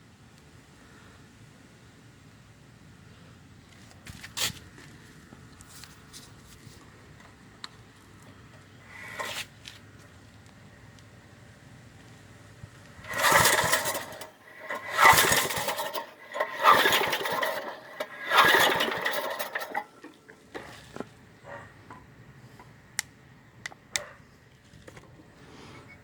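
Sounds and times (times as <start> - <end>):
recoil starter pulls: 8.4 - 9.8, 12.8 - 21.2
engine cranking: 8.8 - 9.6, 12.9 - 21.1.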